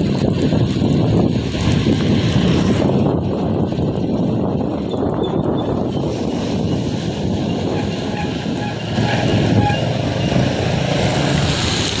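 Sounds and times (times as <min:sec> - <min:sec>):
wind rumbling on microphone: 0:00.0 - 0:12.0
hiss of heavy rain: 0:09.4 - 0:12.0.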